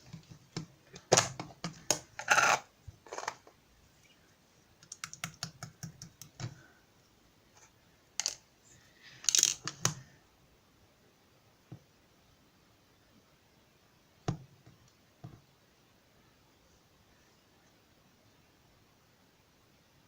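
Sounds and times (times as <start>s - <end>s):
sharp clicks and taps: 4.8s - 6.6s.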